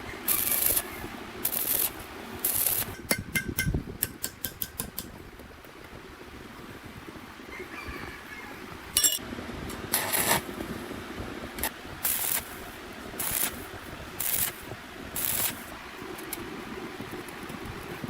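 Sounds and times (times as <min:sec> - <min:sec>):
short hissing bursts: 0:00.0 - 0:03.0, 0:11.6 - 0:15.9
steady low hum: 0:00.0 - 0:07.5, 0:08.2 - 0:18.0
sharp metallic clink: 0:09.0 - 0:09.2.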